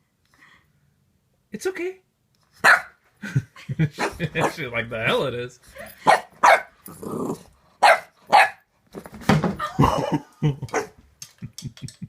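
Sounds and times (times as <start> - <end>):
puppy barking: 2.6 - 3.0, 4.0 - 4.6, 6.0 - 6.8, 7.8 - 8.7, 10.7 - 10.9.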